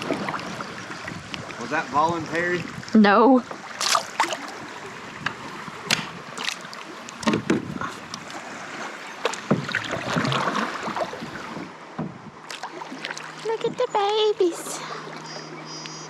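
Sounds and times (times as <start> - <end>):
water splashing around kayak: 0.0 - 16.0
knocks against kayak hull: 5.2 - 6.2, 7.2 - 7.9, 9.2 - 10.5, 12.0 - 12.3.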